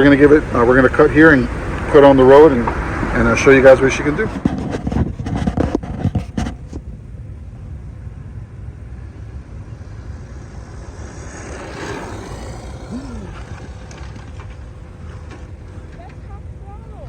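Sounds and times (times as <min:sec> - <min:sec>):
low outdoor rumble: 0:00.0 - 0:17.0
vehicle passing: 0:00.0 - 0:17.0.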